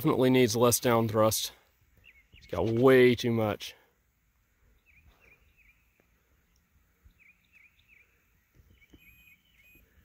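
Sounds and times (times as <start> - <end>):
bird chirping faintly: 1.9 - 3.1, 4.4 - 10.0.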